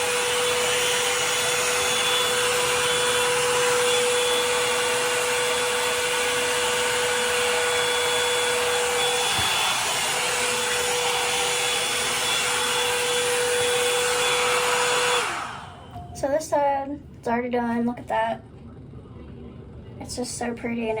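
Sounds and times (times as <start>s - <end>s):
hair dryer brush running: 0.0s - 16.0s.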